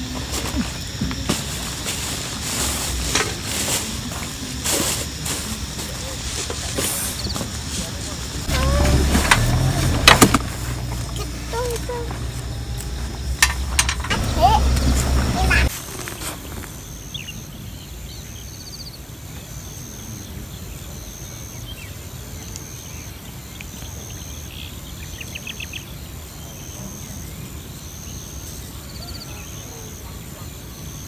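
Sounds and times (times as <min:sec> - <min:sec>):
insects chirping: 0:00.0 - 0:31.0
steady low rumble: 0:08.1 - 0:15.7.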